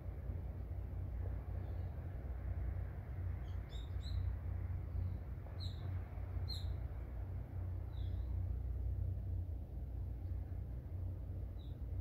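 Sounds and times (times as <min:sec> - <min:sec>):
steady low rumble: 0:00.0 - 0:12.0
small birds chirping: 0:03.4 - 0:06.8, 0:07.8 - 0:08.4, 0:11.5 - 0:11.9.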